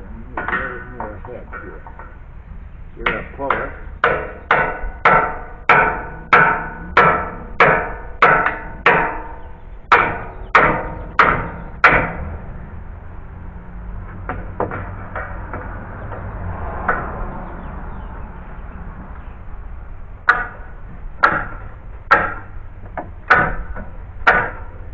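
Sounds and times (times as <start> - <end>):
hammer ringing blows on metal: 3.0 - 12.4.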